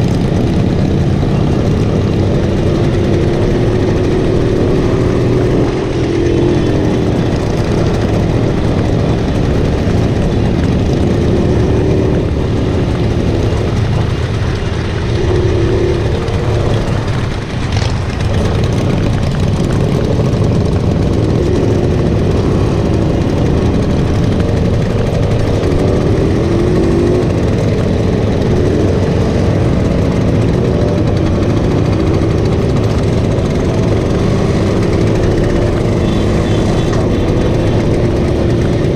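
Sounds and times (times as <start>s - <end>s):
small motorcycle engine revving: 17.8s - 38.9s.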